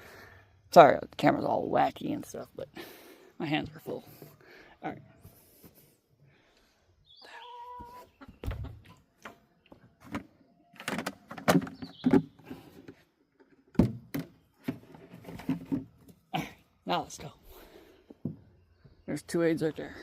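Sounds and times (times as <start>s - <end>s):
chickens squawking: 7.1s - 9.0s
knocks and thumps of handling: 8.4s - 16.2s.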